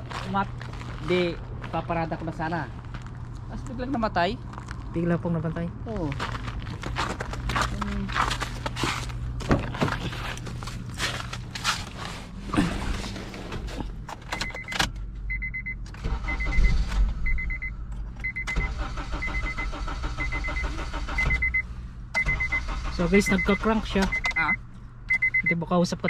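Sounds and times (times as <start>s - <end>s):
car starter cranking engine: 15.9s - 17.4s, 18.3s - 24.2s
warning chime beeping: 22.2s - 26.0s.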